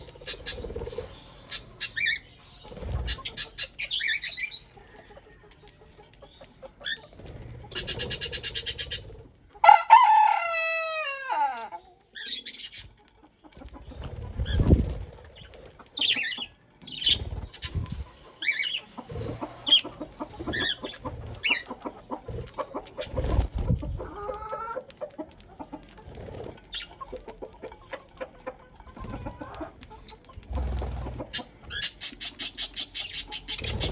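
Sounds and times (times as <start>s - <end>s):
budgerigars chirping: 0.2s - 4.7s, 7.7s - 9.2s, 11.6s - 12.9s, 15.4s - 21.8s, 31.3s - 33.9s.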